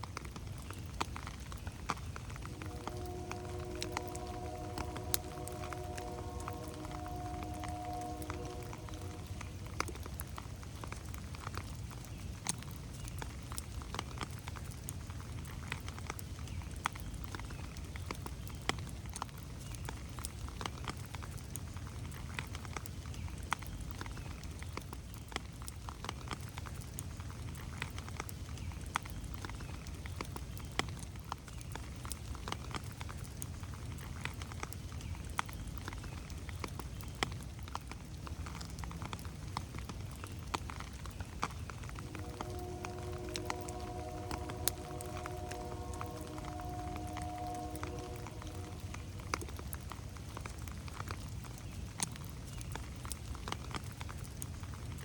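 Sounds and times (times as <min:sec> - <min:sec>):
raindrops tapping on leaves: 0:00.0 - 0:55.0
steady low rumble: 0:02.2 - 0:10.9, 0:41.5 - 0:51.0.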